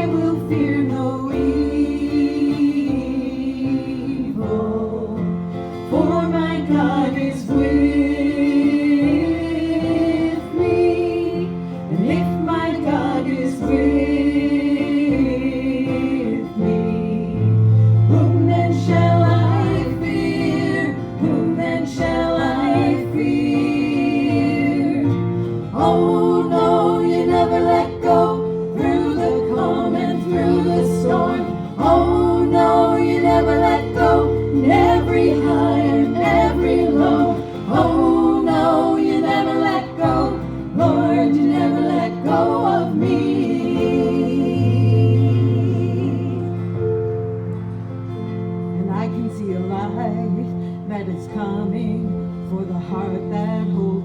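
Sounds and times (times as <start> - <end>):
guitar: 0.0 - 54.0
steady bass line: 13.7 - 47.3.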